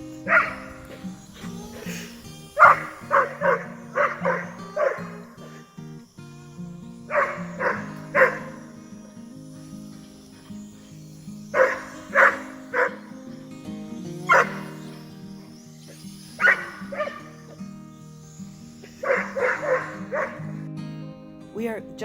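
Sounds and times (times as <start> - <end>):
background music: 0.0 - 6.2, 7.0 - 9.6, 11.5 - 15.5, 19.0 - 22.0
dog barking: 0.2 - 1.0, 1.8 - 5.6, 7.1 - 8.9, 11.5 - 13.3, 14.3 - 15.0, 16.4 - 17.6, 18.8 - 20.6.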